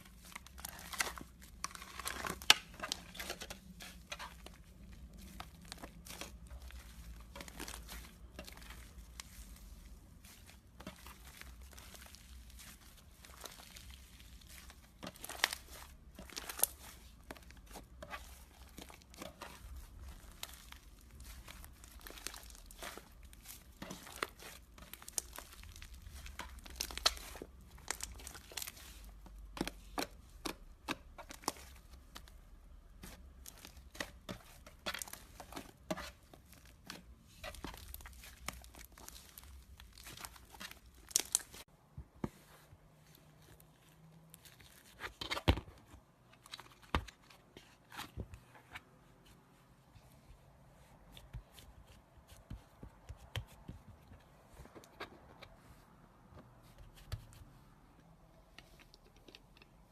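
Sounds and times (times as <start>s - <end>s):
slime popping and crackling: 10.8s - 32.3s, 33.1s - 41.7s.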